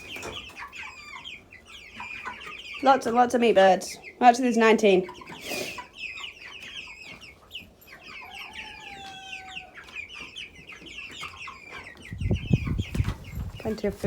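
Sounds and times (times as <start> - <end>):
chickens peeping and clucking: 0.0 - 14.0
long held chicken call: 8.1 - 9.9.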